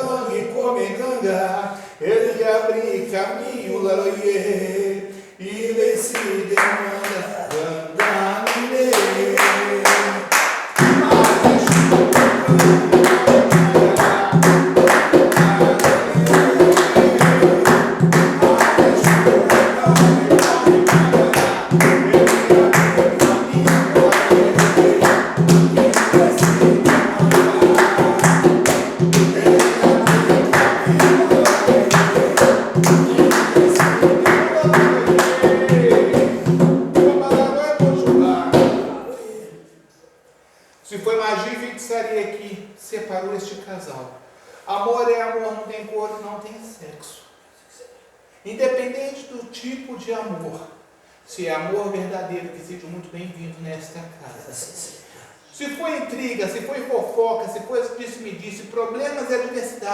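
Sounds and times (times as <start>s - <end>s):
group chanting: 0.0s - 39.9s
hands clapping: 6.2s - 36.3s
hand drums beating: 10.8s - 39.0s.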